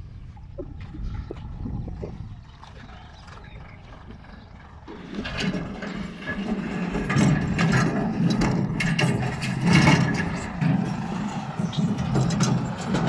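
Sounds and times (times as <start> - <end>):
machine rattling and clattering: 4.9 - 13.0.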